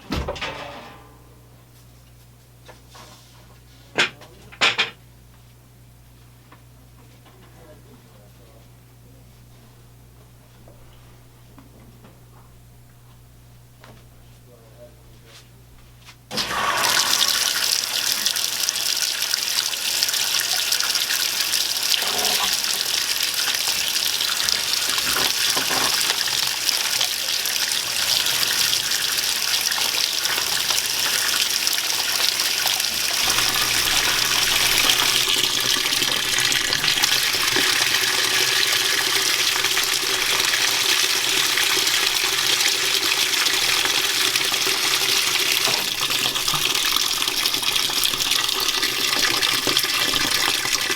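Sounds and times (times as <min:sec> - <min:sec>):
water gushing into tub: 0:16.3 - 0:50.9
water inlet valve opening: 0:16.3 - 0:50.9.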